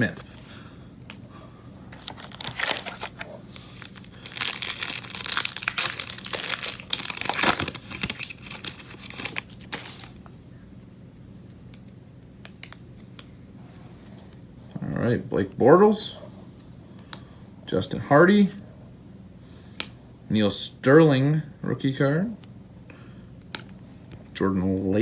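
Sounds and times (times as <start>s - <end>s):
wrapper tearing and crinkling: 2.0s - 10.2s.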